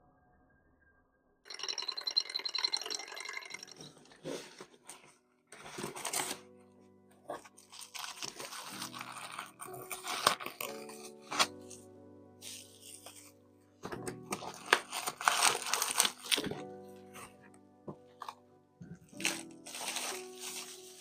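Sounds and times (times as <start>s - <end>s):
soft ambient music: 0.0s - 21.0s
packaging crinkling: 5.7s - 6.5s, 7.5s - 11.8s, 14.0s - 16.7s, 19.1s - 21.0s.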